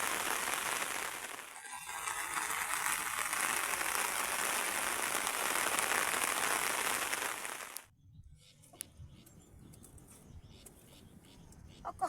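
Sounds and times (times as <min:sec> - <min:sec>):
heavy rain: 0:00.0 - 0:07.9.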